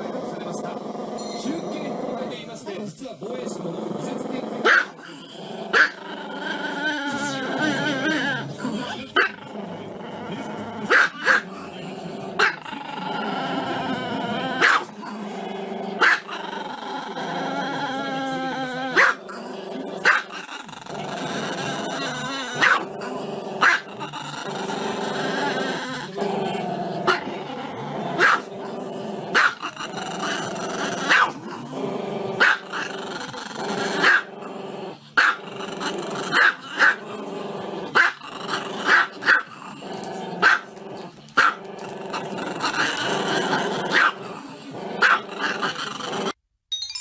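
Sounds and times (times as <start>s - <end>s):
dog growling: 0.0s - 46.4s
small dog barking: 4.6s - 5.0s, 5.7s - 6.0s, 10.9s - 11.4s, 14.6s - 14.9s, 16.0s - 16.3s, 19.0s - 19.2s, 20.0s - 20.3s, 22.6s - 22.8s, 28.2s - 28.5s, 29.3s - 29.6s, 31.1s - 31.4s, 32.4s - 32.6s, 34.0s - 34.3s, 35.2s - 35.4s, 36.3s - 37.0s, 37.9s - 38.2s, 38.8s - 39.5s, 40.4s - 40.7s, 41.4s - 41.6s, 43.9s - 44.2s, 45.0s - 45.3s.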